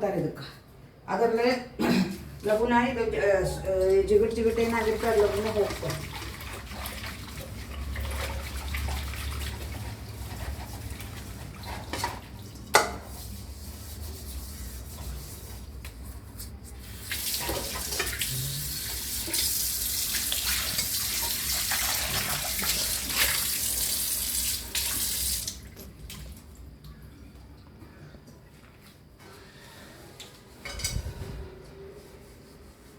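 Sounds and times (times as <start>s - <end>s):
steel scrubber scrubbing pan: 4.6s - 15.7s
tap water running into sink: 17.0s - 26.4s.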